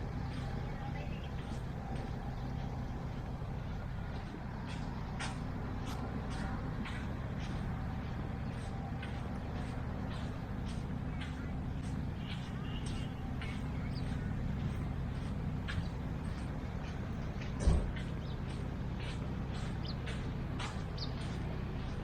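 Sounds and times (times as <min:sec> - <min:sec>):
passing vehicles rumbling: 0:00.0 - 0:22.0
sharp ticks and clicks: 0:01.4 - 0:22.0.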